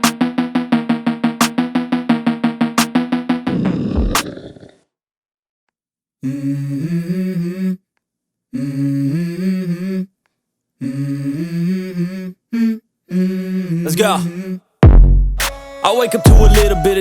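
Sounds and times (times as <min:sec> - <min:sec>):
hummed vocal melody: 0:06.2 - 0:07.9, 0:08.5 - 0:10.2, 0:10.8 - 0:14.7, 0:15.8 - 0:17.0
background music: 0:14.8 - 0:17.0.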